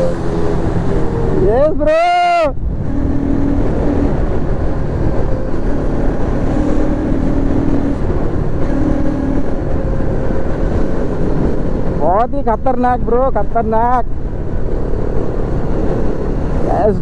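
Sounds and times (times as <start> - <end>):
wind on microphone: 2.5 - 12.2.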